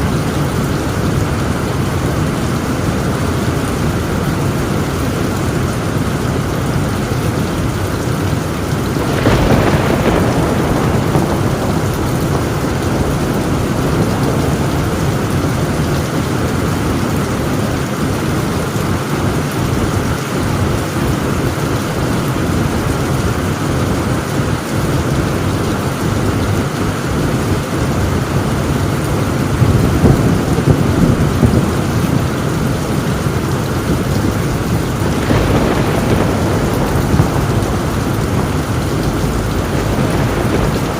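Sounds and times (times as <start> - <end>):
heavy rain on a tin roof: 0.0 - 40.9
rolling rumble of thunder: 0.0 - 40.9
thunder clap: 6.8 - 17.9, 24.1 - 40.9.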